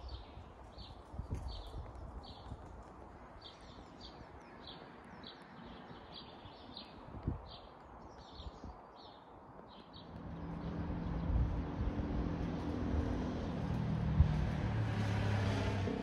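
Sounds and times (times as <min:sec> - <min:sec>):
low background rumble: 0:10.1 - 0:14.7.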